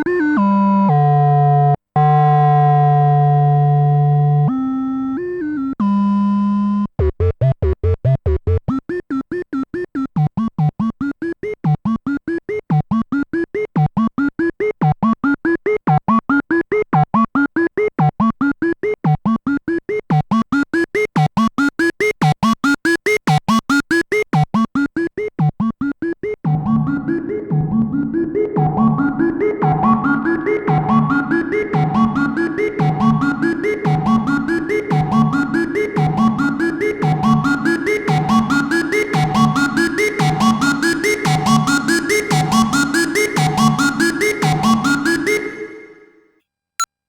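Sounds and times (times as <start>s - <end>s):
synthesizer staccato sequence: 7.0s - 9.0s, 23.1s - 46.0s.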